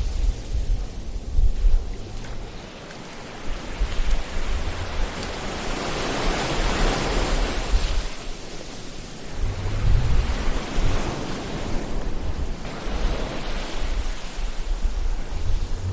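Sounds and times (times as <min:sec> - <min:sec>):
ocean waves washing in: 0:00.0 - 0:15.9
deep rumble: 0:09.2 - 0:15.9.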